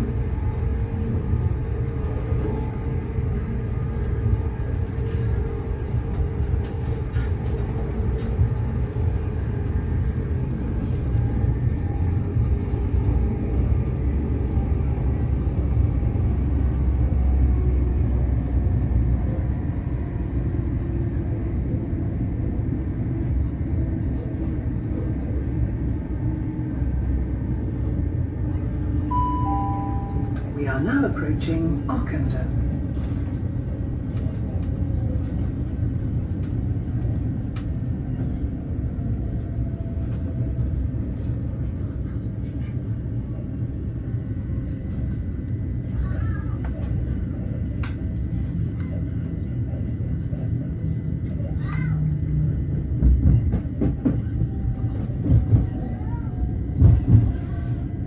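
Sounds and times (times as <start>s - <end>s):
train rumbling at speed: 0.0s - 58.0s
two-note chime: 29.1s - 30.4s.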